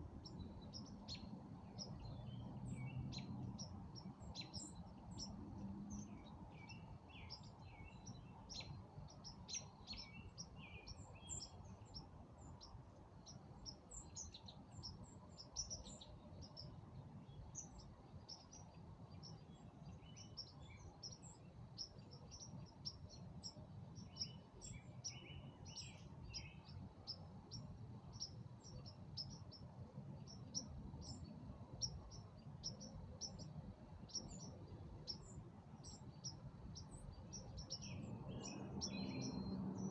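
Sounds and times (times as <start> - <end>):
songbirds chirping: 0.0 - 39.9
faint low rumble: 36.8 - 39.9.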